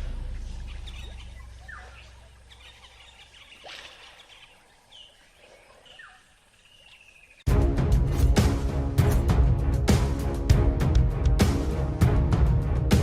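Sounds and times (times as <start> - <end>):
bird chirps: 0.2 - 7.4
background music: 7.5 - 13.0.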